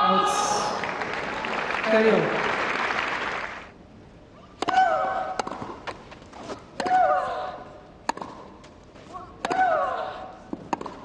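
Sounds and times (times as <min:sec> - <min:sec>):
tennis ball bounces: 0:04.6 - 0:07.2, 0:08.0 - 0:08.7, 0:09.4 - 0:09.8, 0:10.5 - 0:11.0
tennis racket strikes: 0:04.6 - 0:07.2, 0:08.0 - 0:08.5, 0:09.4 - 0:09.8, 0:10.5 - 0:11.0.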